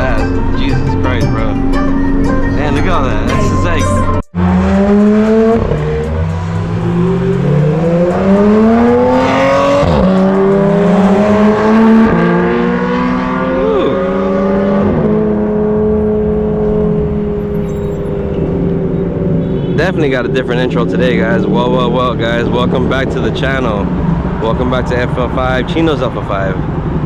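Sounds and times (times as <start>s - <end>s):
car engine accelerating hard: 4.4s - 27.0s.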